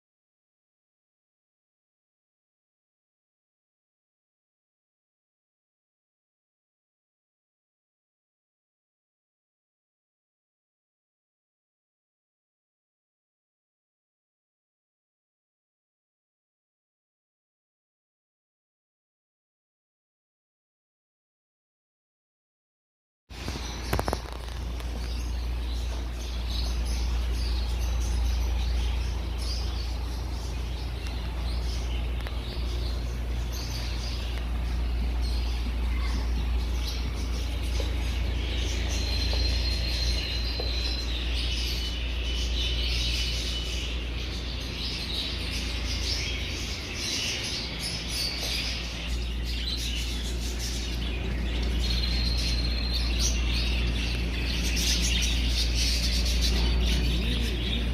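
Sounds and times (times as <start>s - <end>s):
birds chirping and twittering: 23.3s - 57.9s
low hum: 23.4s - 57.9s.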